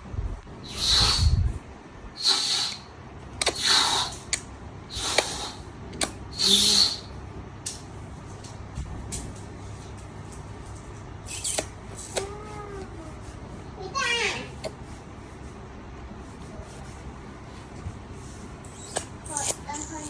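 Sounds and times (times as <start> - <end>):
baby breathy hissing sounds: 0.6 - 1.6, 2.2 - 5.7, 6.3 - 7.2.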